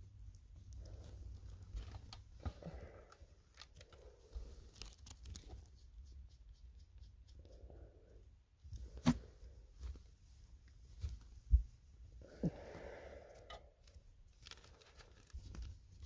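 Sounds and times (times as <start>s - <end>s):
faint clicks and rustling: 0.2s - 5.9s.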